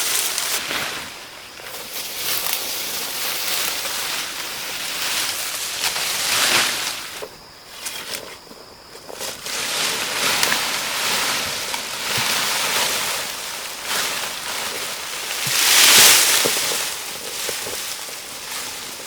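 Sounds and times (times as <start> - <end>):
rushing hissing noise: 9.3 - 19.0.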